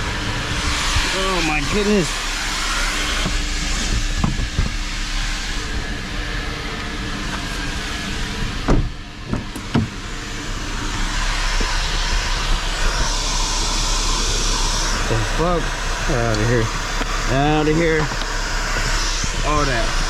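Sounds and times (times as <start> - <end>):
vacuum cleaner running: 0.0 - 20.0
nozzle knocking: 3.2 - 4.8.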